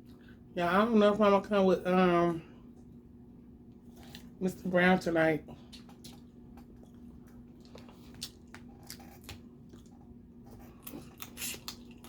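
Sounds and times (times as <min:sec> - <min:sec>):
faint steady hum: 0:00.0 - 0:12.0
wet chewing: 0:05.6 - 0:12.0.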